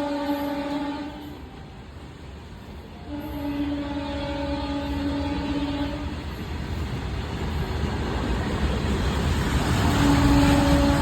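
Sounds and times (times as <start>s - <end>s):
train horn: 0.0s - 1.6s, 3.0s - 6.3s, 9.7s - 11.0s
rumble of running train: 0.0s - 11.0s.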